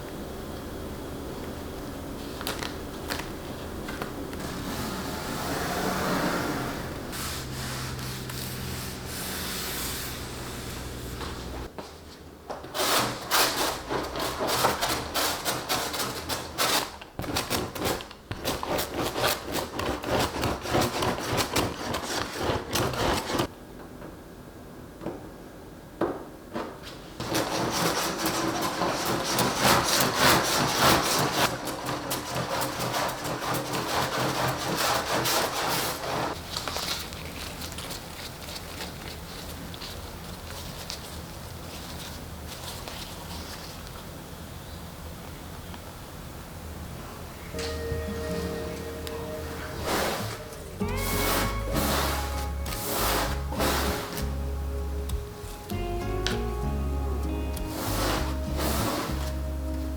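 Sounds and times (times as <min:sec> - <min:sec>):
rubbing strokes on canvas: 0:04.5 - 0:11.7, 0:27.2 - 0:43.7, 0:49.6 - 0:54.4, 0:57.6 - 0:59.5.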